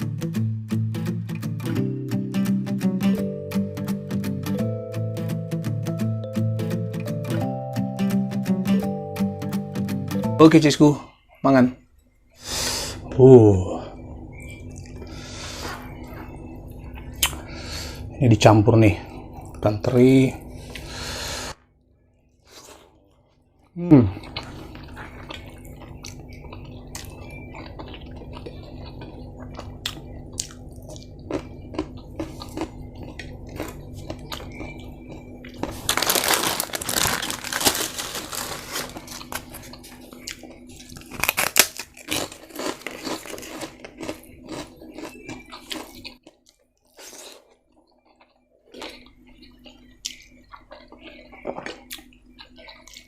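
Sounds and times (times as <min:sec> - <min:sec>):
low hum: 0:11.1 - 0:46.2
crunchy food being chewed: 0:22.5 - 0:53.0.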